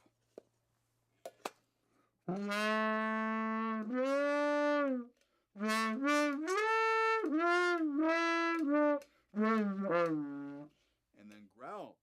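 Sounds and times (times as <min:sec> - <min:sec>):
muted trombone notes: 0:02.3 - 0:10.7.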